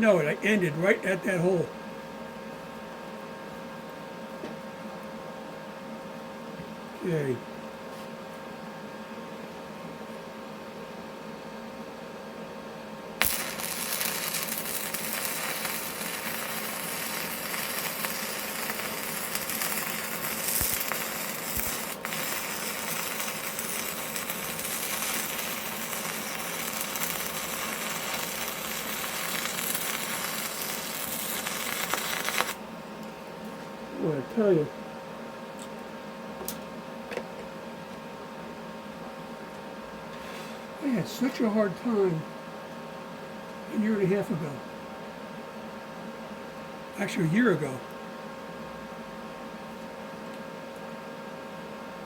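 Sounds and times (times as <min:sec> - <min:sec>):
steady machine hum: 0:00.0 - 0:52.0
welding arc crackling and sizzling: 0:13.2 - 0:32.6.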